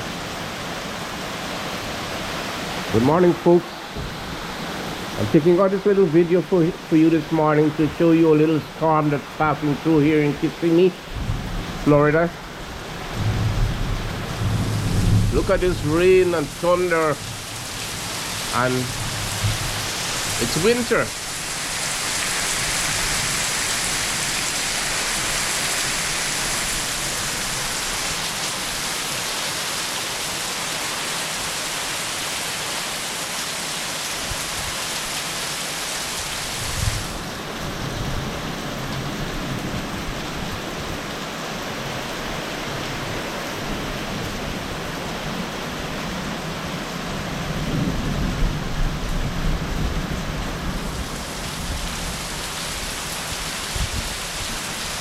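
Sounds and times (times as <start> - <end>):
heavy rain pouring: 0.0 - 55.0
low rumble of thunder: 11.1 - 11.9, 12.7 - 17.6, 18.8 - 20.0, 47.4 - 51.9.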